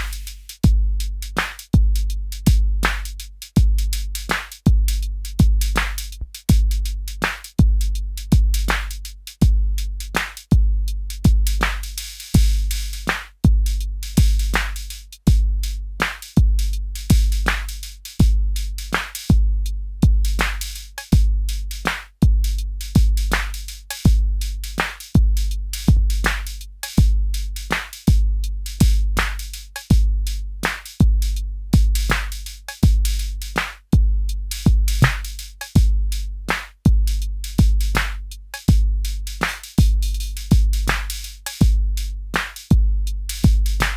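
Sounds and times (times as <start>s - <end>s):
snare and cymbal hits: 0.0s - 10.6s, 11.2s - 19.4s, 20.3s - 43.9s
booming kick drum: 0.6s - 1.0s, 1.8s - 3.0s, 3.6s - 4.0s, 4.7s - 5.9s, 6.5s - 6.9s, 7.6s - 8.8s, 9.4s - 9.8s, 10.5s - 11.7s, 12.4s - 12.8s, 13.4s - 14.7s, 15.3s - 15.7s, 16.4s - 17.6s, 18.2s - 18.6s, 19.3s - 20.6s, 21.2s - 21.5s, 22.2s - 23.4s, 24.1s - 24.4s, 25.2s - 26.4s, 27.0s - 27.4s, 28.1s - 30.3s, 31.0s - 33.3s, 34.0s - 36.2s, 36.9s - 39.1s, 39.8s - 42.0s, 42.7s - 43.9s.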